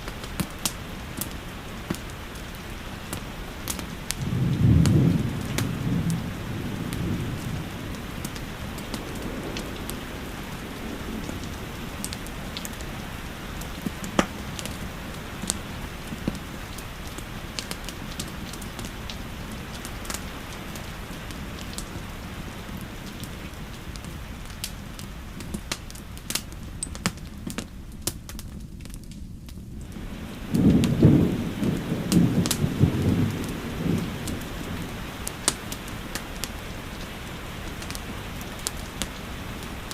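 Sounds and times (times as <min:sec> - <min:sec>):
steady rainfall: 0:00.0 - 0:39.9
wood fire crackling: 0:00.0 - 0:39.9
low thunder rumbling: 0:03.8 - 0:24.1, 0:29.6 - 0:39.9.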